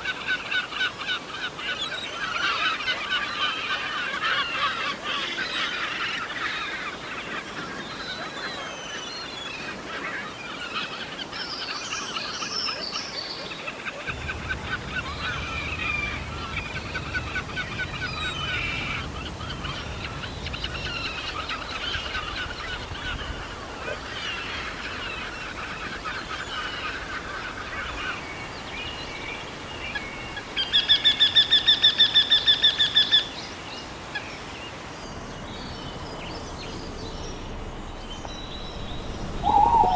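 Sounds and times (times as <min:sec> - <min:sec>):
bird fast repeated notes: 0:14.1 - 0:21.1, 0:35.1 - 0:39.9
birds chirping and trilling: 0:14.1 - 0:22.1, 0:35.0 - 0:39.9.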